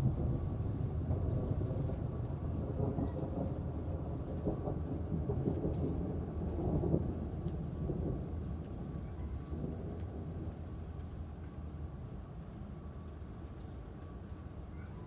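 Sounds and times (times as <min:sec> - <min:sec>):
rolling thunder: 0:00.0 - 0:11.0
steady rain: 0:00.0 - 0:15.0.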